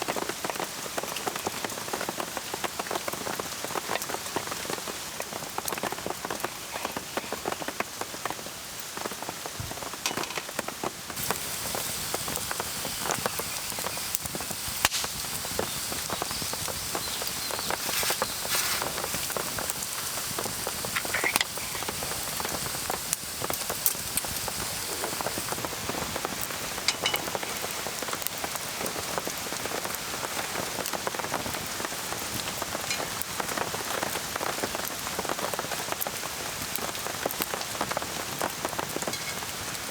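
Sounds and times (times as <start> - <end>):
raindrops ticking on surfaces: 0.0 - 39.9
steady rain falling: 0.0 - 39.9.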